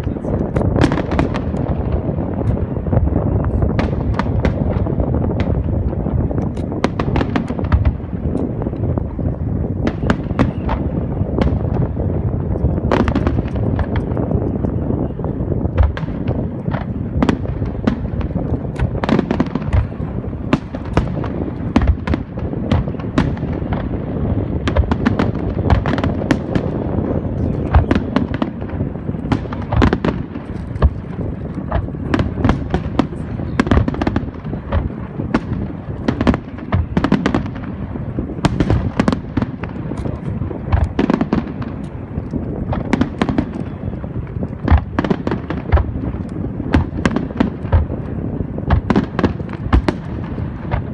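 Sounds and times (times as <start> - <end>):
continuous rumble: 0.0 - 50.9
fireworks bursts and crackles: 0.0 - 50.9.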